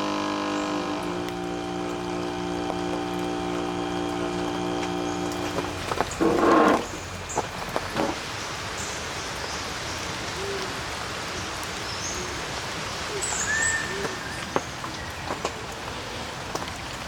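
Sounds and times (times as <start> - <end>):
steady rain-like hiss: 0.0 - 17.0
high whistled bird notes: 13.2 - 14.5.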